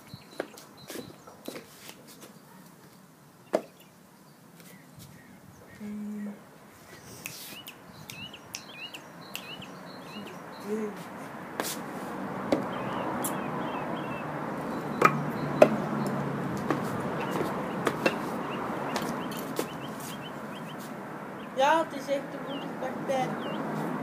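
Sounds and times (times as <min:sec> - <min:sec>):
bird chirping: 0:00.0 - 0:01.6, 0:03.4 - 0:11.2, 0:12.6 - 0:23.8
background hiss: 0:05.8 - 0:12.2.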